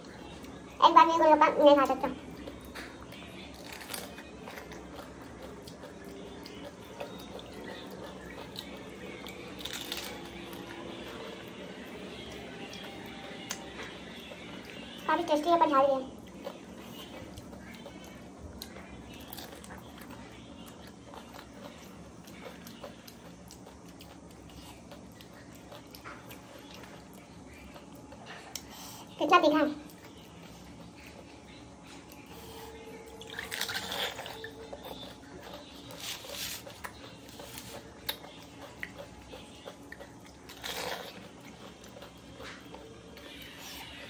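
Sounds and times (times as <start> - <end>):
crisp shells crunching while chewing: 2.3 - 14.0, 16.3 - 28.7, 33.1 - 44.0
crisp shells crunching: 9.6 - 10.4.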